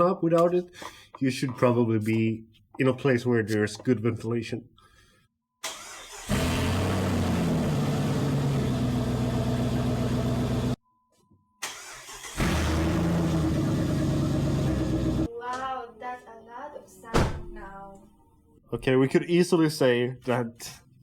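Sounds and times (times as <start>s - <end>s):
unmuffled car engine running: 6.3s - 10.8s, 12.4s - 15.3s.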